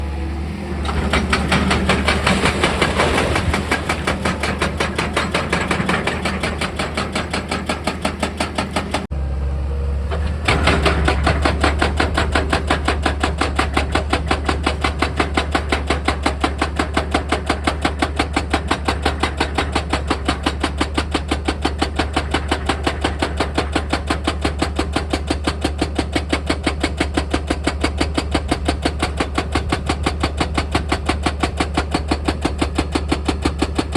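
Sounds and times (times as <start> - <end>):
excavator engine humming: 0.0 - 24.5
hydraulic rock drill hammering: 0.6 - 9.1, 10.1 - 33.9.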